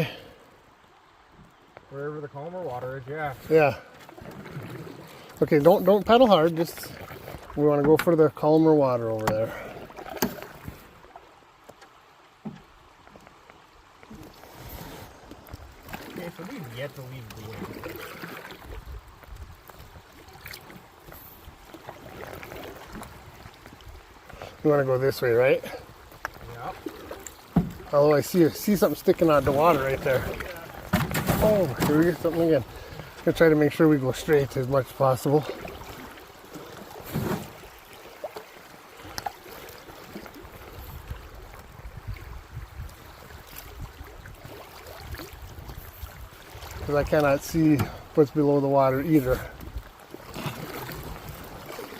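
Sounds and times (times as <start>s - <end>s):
river water trickling around canoe: 0.0s - 51.9s
light knocks on canoe: 7.3s - 8.2s, 11.6s - 13.4s, 27.2s - 27.9s, 30.3s - 32.1s, 47.7s - 48.0s
knocks on canoe: 27.5s - 27.9s, 30.4s - 32.0s.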